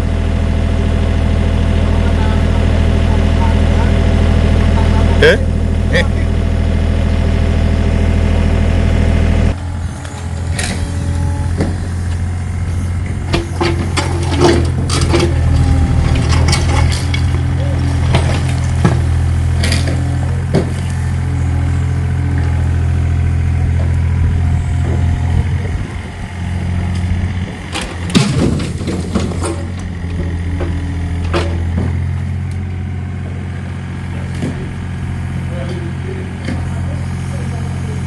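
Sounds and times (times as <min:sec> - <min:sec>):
motor humming: 0:02.0 - 0:37.6
knocks and clanks: 0:13.0 - 0:20.9, 0:27.6 - 0:32.3, 0:34.3 - 0:34.8.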